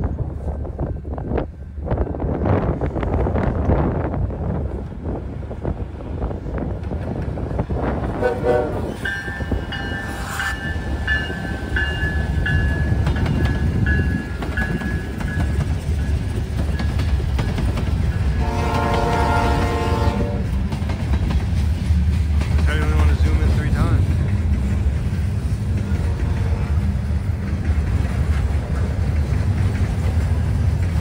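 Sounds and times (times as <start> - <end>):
freight train locomotive rumbling: 0.0 - 31.0
locomotive air horn blast: 8.2 - 9.0, 18.4 - 20.5.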